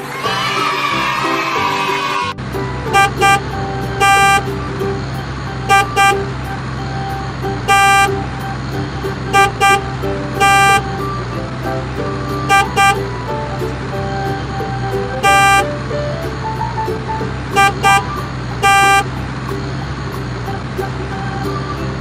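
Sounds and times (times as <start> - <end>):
low engine hum: 2.4 - 22.0
vehicle horn honking: 2.9 - 4.6, 5.6 - 8.4, 9.3 - 11.1, 12.4 - 13.1, 15.1 - 15.8, 17.5 - 19.2.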